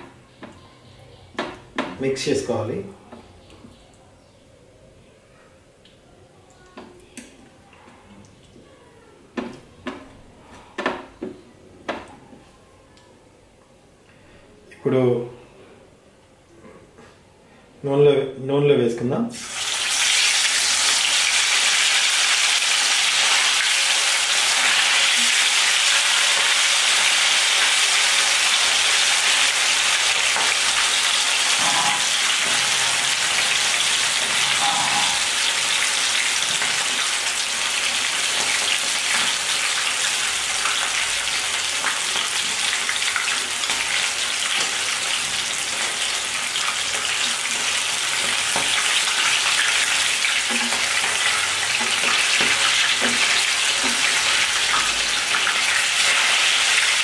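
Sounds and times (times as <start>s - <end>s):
chicken sizzling in hot oil: 19.3s - 57.0s.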